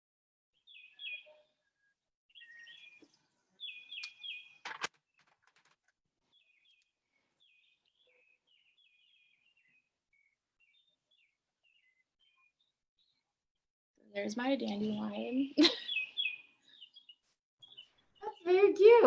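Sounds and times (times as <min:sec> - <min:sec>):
songbirds chirping: 0:00.6 - 0:13.4, 0:14.0 - 0:19.0.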